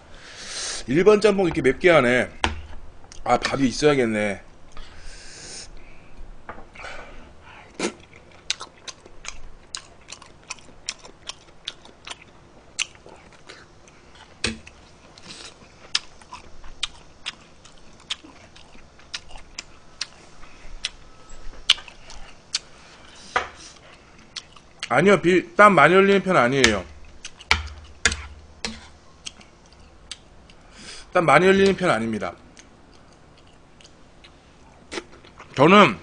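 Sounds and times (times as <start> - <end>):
man chewing with wet mouth clicks: 7.7 - 22.8, 23.6 - 24.9, 27.0 - 30.7, 32.5 - 35.6.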